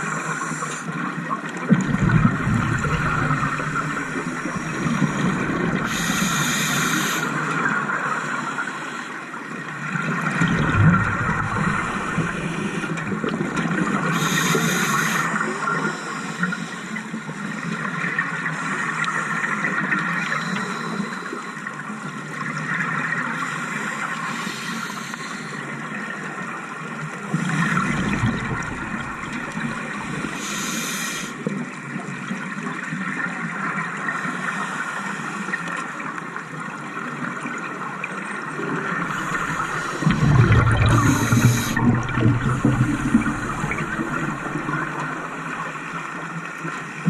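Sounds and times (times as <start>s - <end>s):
underwater water noise: 0.0s - 47.0s
exhaled bubbles gushing: 1.4s - 6.8s, 9.8s - 14.4s, 27.3s - 30.6s, 38.5s - 46.1s
regulator inhalation hiss: 4.0s - 7.4s, 14.2s - 15.4s, 24.3s - 25.6s, 29.5s - 31.4s, 40.9s - 41.8s.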